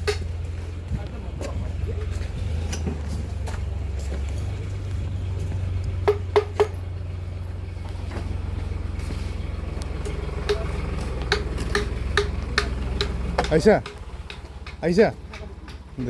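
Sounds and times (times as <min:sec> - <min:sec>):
tractor engine rumbling: 0:00.0 - 0:16.0.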